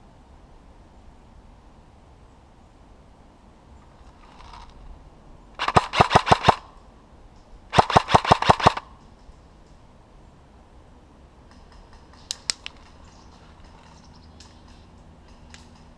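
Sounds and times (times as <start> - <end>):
faint rustle of movement: 3.8 - 5.0, 11.5 - 15.9
airsoft gun firing: 5.6 - 6.7, 7.7 - 8.9.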